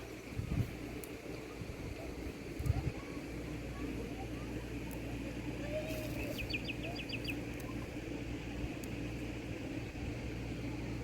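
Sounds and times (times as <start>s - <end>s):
small bird chirping: 5.7s - 7.9s.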